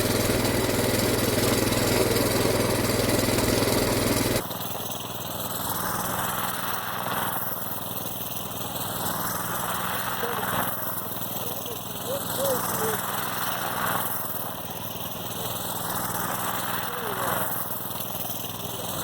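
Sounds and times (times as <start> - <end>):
mini bike engine running: 0.0 - 19.0.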